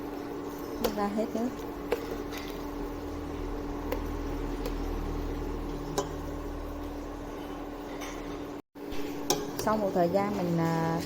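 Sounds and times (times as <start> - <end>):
syrup simmering in pot: 0.0 - 7.9
steady low hum: 0.0 - 10.9.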